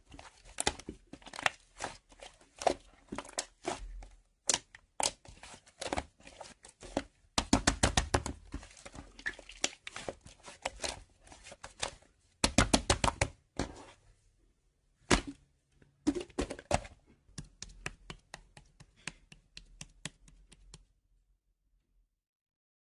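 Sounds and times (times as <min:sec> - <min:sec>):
sharp clicks and taps: 0:17.3 - 0:20.9.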